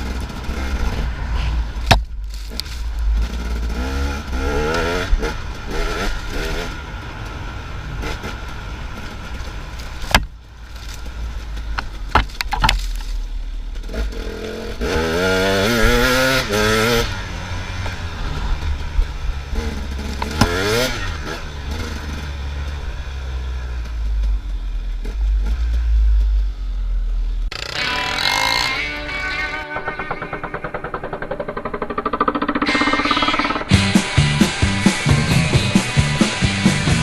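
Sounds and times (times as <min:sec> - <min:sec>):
dirt bike engine revving: 0:00.0 - 0:01.8, 0:02.5 - 0:07.0, 0:13.8 - 0:23.6, 0:27.5 - 0:37.0
sharp knocks: 0:29.1 - 0:34.0.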